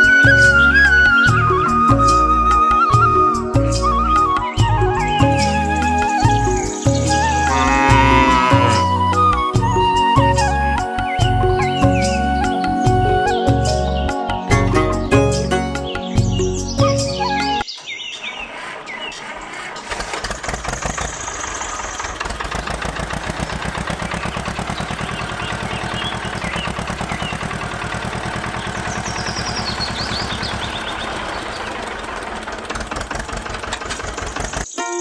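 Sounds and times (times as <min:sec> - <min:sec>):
high chirps: 0:00.0 - 0:17.8
small engine chugging: 0:18.5 - 0:34.8.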